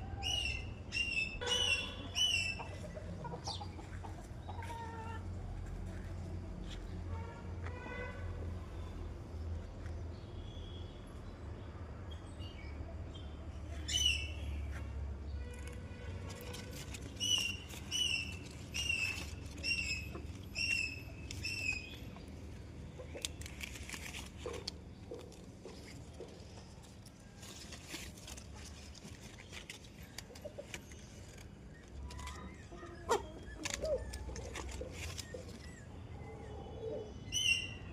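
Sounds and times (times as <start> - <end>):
bird calling: 0.0 - 5.1.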